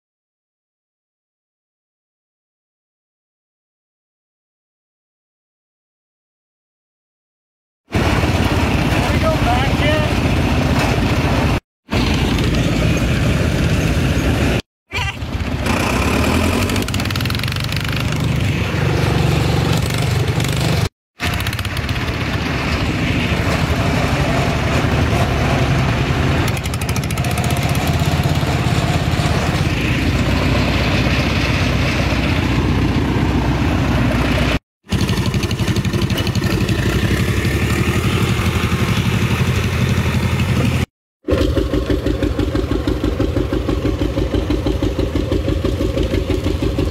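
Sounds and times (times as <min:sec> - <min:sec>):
tractor engine running: 0:07.9 - 0:46.9.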